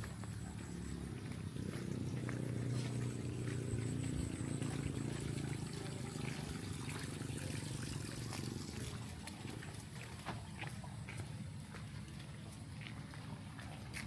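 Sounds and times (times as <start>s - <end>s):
running water rushing: 1.2s - 10.5s.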